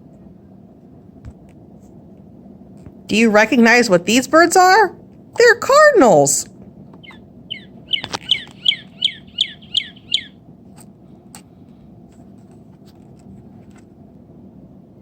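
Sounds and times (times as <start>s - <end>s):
cardinal whistled song: 7.0s - 10.4s.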